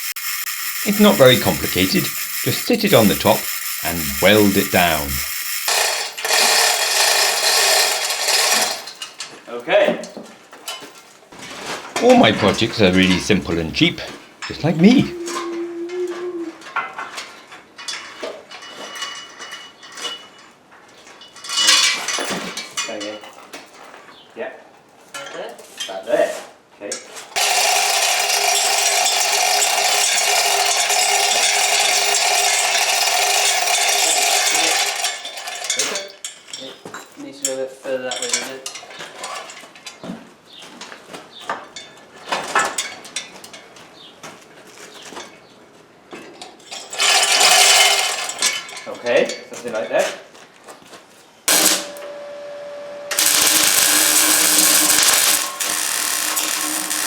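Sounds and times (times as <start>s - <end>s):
harsh hiss with low hum: 0.0s - 5.4s, 53.1s - 57.0s
power tool whining: 0.0s - 8.8s, 51.5s - 57.0s
arc welder crackling: 0.0s - 8.9s, 51.5s - 52.1s, 53.1s - 57.0s.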